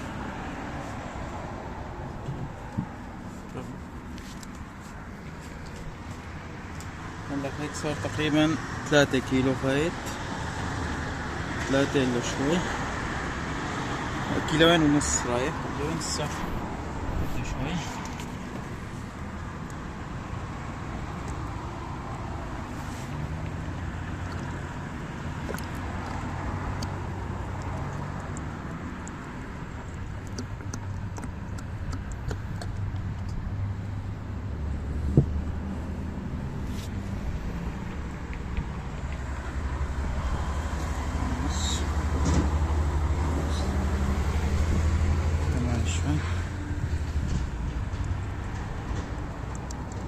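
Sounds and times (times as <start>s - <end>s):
motor vehicle engine rumbling: 12.9s - 50.0s.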